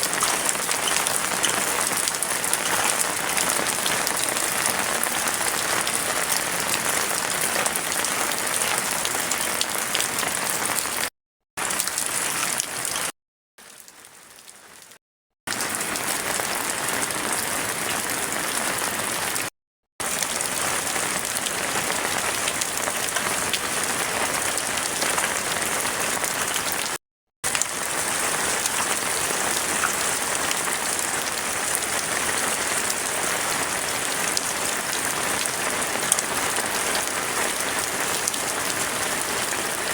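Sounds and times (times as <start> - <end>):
heavy rain falling: 0.0 - 11.0, 20.0 - 26.9, 27.5 - 39.9.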